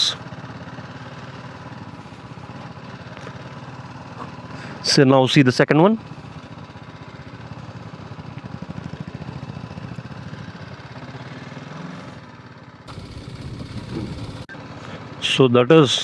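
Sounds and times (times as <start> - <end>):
motorcycle engine running: 12.9 - 14.5.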